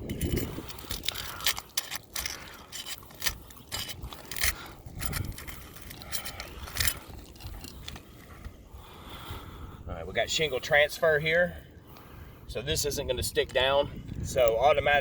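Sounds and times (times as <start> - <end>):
shingle scraping and cracking: 0.0 - 8.6.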